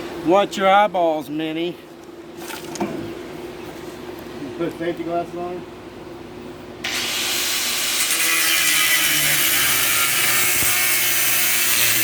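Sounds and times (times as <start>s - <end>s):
angle grinder cutting steel: 6.8s - 12.0s.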